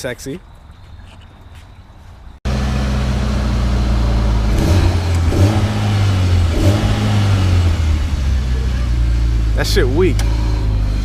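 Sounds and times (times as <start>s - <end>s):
car engine idling and revving: 2.4s - 11.0s.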